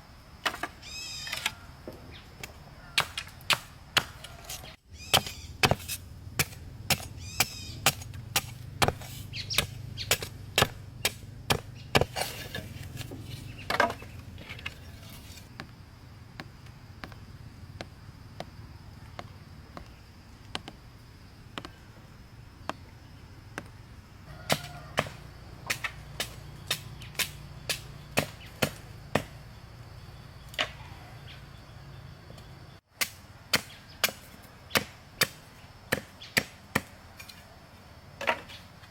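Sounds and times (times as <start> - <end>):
blade chopping wood: 3.0 - 15.8, 24.5 - 29.3.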